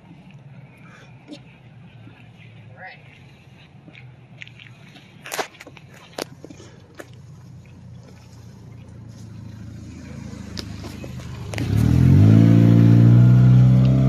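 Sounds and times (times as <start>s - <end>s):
car engine accelerating: 7.3s - 14.0s.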